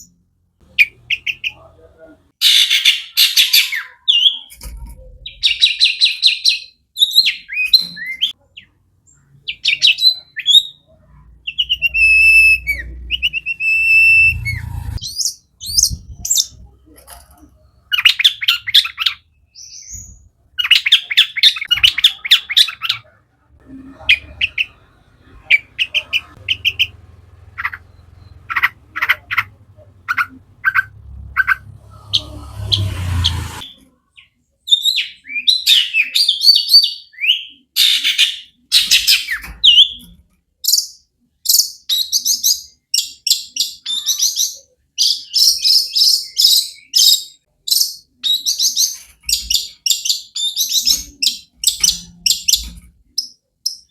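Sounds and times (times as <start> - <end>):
shrike chattering song: 17.4 - 33.9
hissing rumble: 23.6 - 33.6.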